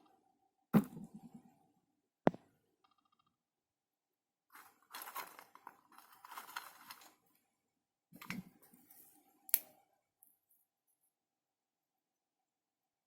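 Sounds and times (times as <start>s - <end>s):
snack packet crackling: 4.6s - 7.2s.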